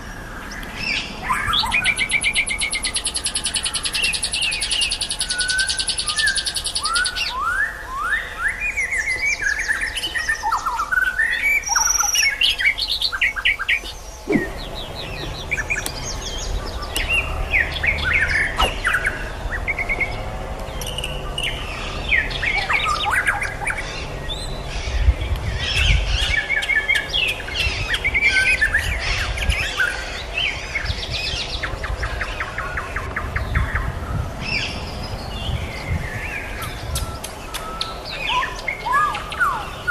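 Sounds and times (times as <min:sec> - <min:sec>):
songbirds singing: 0:00.0 - 0:39.9
low rumble: 0:14.0 - 0:23.0.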